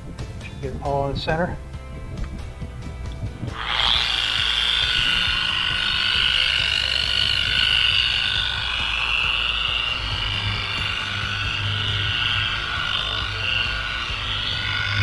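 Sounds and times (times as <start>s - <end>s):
electric buffer whining: 1.7s - 15.0s.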